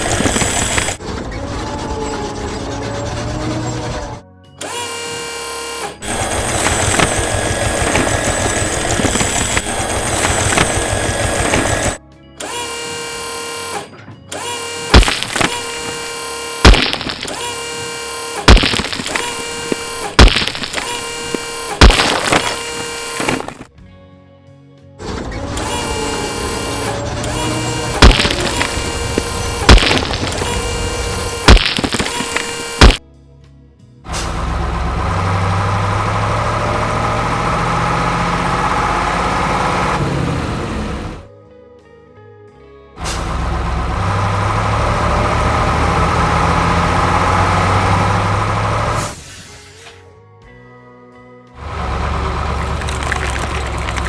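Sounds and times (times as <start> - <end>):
loud sharp impacts: 0.0 - 1.0, 6.0 - 12.0, 14.9 - 17.7, 18.5 - 23.7, 27.3 - 33.0
heavy diesel engine humming: 0.0 - 23.7, 25.1 - 33.0, 34.1 - 41.3, 43.0 - 49.2, 51.6 - 54.0
heavy machinery running: 0.0 - 23.7, 25.0 - 33.0, 34.1 - 41.3, 43.0 - 49.8, 51.6 - 54.0.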